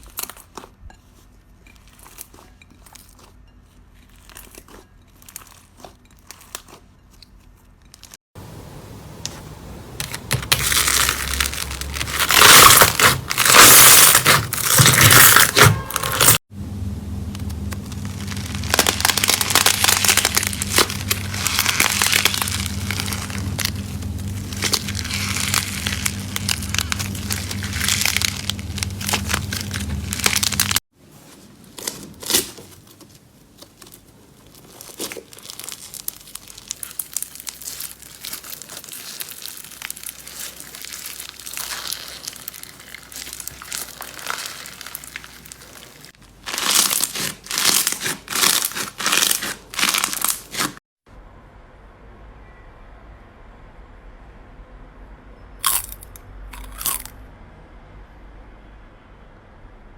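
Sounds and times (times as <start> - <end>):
steady low hum: 8.4 - 30.8
slime squished by hand crackling: 10.0 - 16.2, 34.5 - 50.8.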